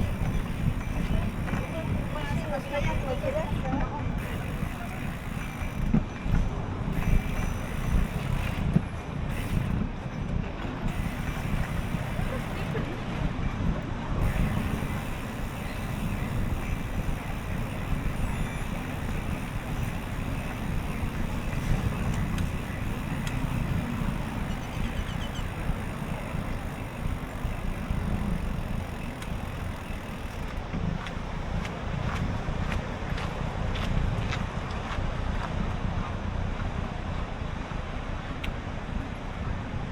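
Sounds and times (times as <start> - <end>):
bicycle ride hiss: 0.0 - 5.9, 6.9 - 9.8, 10.8 - 13.3, 14.1 - 33.1
wind rumbling on microphone: 0.0 - 39.9.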